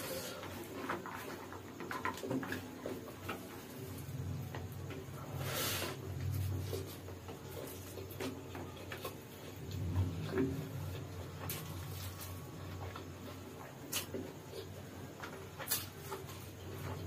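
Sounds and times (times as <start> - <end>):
man chewing food: 0.0 - 17.0
noodles slurped hiss: 5.2 - 6.2.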